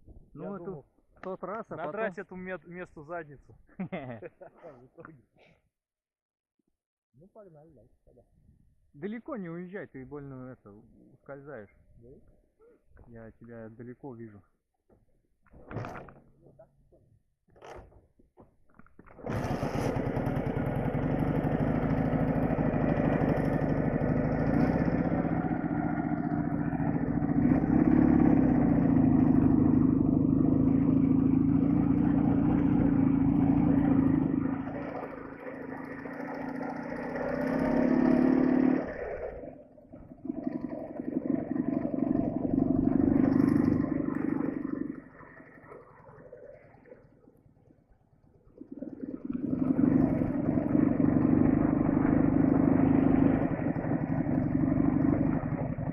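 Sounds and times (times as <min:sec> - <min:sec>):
motorcycle engine riding: 0:18.9 - 0:45.2, 0:49.2 - 0:55.9.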